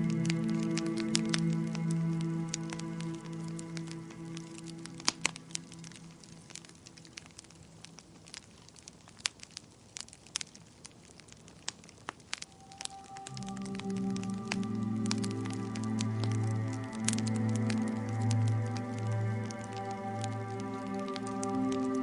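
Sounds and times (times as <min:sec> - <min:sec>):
soft sustained music: 0:00.0 - 0:07.5, 0:12.3 - 0:22.0
wood fire crackling: 0:00.0 - 0:22.0
low music phrase: 0:12.6 - 0:22.0.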